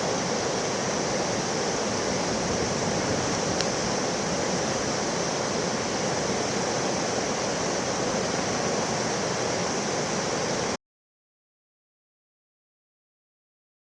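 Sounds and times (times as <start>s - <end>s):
floodwater rushing: 0.0s - 10.8s.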